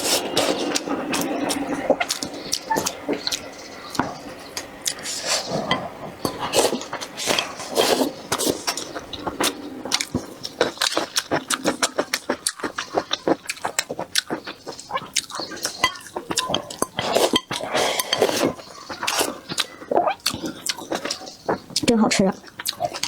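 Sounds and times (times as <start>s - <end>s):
slurping: 0.0s - 21.8s
person chewing noodles: 0.0s - 23.0s.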